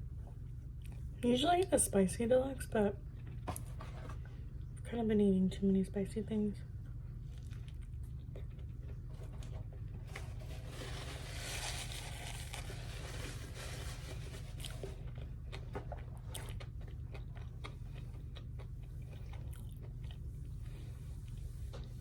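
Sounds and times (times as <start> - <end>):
steady low hum: 0.0 - 22.0
person biting and chewing: 14.2 - 21.6.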